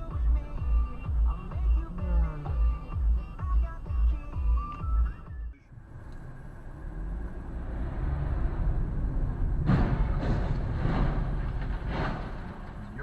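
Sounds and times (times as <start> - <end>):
thumping dance beat: 0.0 - 5.5
car driving rumble: 0.0 - 13.0.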